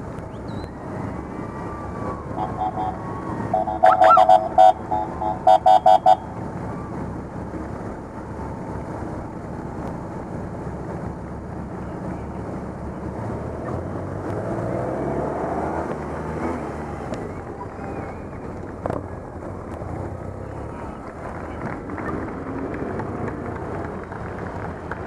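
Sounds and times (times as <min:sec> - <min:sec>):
motorcycle engines running: 0:00.0 - 0:25.0
rising siren chirp: 0:00.5 - 0:06.9
motorcycle horns beeping: 0:02.4 - 0:06.3.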